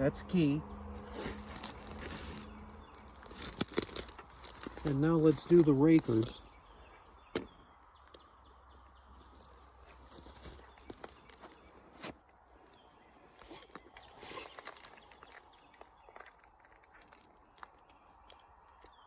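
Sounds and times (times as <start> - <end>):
handling clicks and rustles: 0.9 - 6.7, 9.2 - 17.3.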